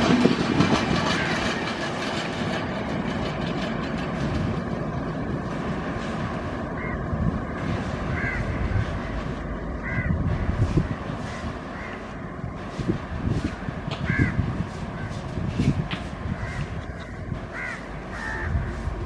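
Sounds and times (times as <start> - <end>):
train rolling past: 0.0 - 19.0
wheel clatter over rail joints: 0.0 - 19.0
crow cawing: 1.2 - 1.4, 6.8 - 12.2, 14.0 - 14.4, 16.3 - 18.8.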